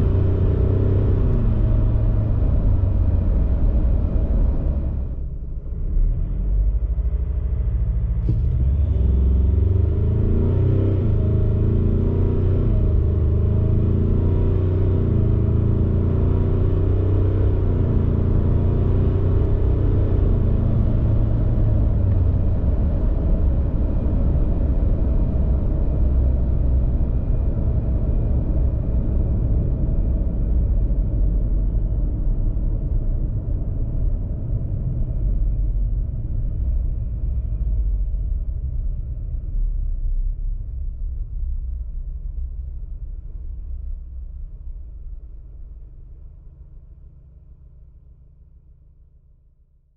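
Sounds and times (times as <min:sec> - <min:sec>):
diesel engine accelerating hard: 0:00.0 - 0:48.6.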